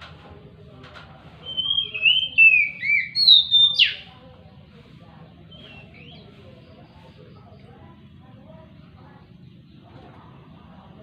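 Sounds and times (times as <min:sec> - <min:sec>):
bird singing whistled phrases: 0:01.4 - 0:04.0, 0:05.5 - 0:06.3.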